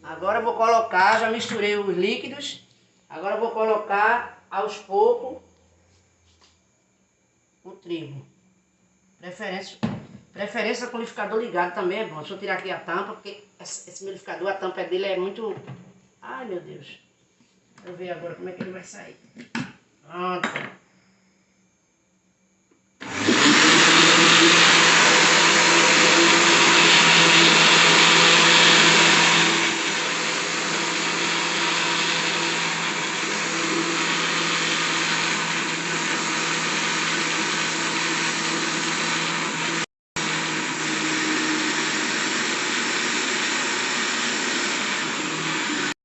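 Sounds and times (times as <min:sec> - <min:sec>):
blender running: 0:00.8 - 0:02.0, 0:23.0 - 0:46.0.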